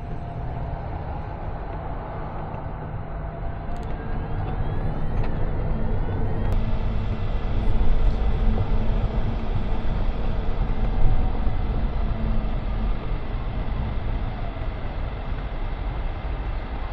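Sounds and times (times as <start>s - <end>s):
car engine rumble: 0.0s - 16.9s.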